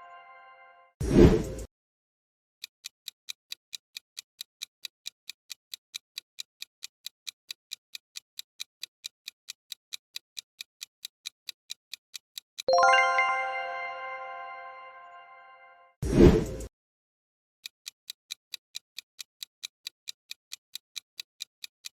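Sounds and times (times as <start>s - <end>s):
clock ticking: 2.8s - 13.4s, 17.6s - 21.9s
bright chime: 12.7s - 15.9s.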